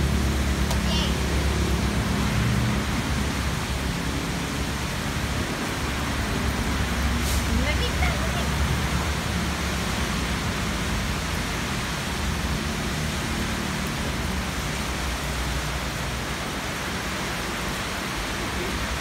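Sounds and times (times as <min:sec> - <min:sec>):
rain falling on concrete: 0:00.0 - 0:19.0.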